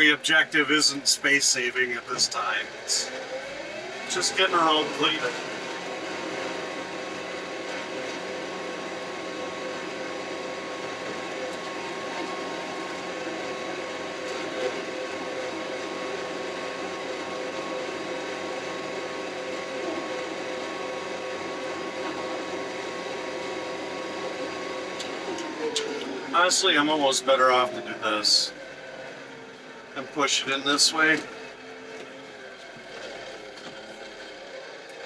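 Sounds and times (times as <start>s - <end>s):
steady whine: 0.0s - 3.2s, 4.1s - 5.4s
tractor diesel engine drone: 0.0s - 35.0s.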